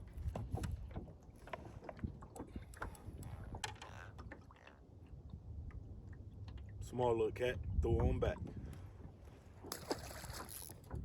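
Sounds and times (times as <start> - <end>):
clicks and knocks of fishing gear: 0.1 - 4.4, 9.6 - 11.0.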